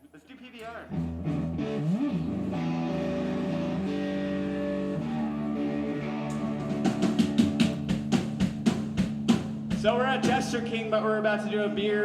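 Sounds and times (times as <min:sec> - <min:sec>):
electric guitar chords: 0:00.9 - 0:12.0
drums hitting: 0:06.4 - 0:11.0.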